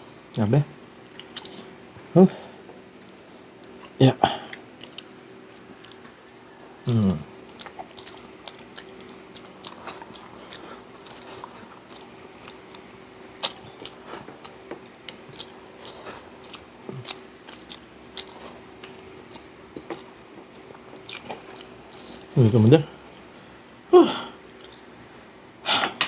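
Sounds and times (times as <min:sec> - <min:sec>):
faint steady hum: 0:00.0 - 0:26.0
chewing and biting food: 0:01.1 - 0:01.7, 0:02.8 - 0:06.2, 0:07.4 - 0:22.4, 0:24.5 - 0:25.0.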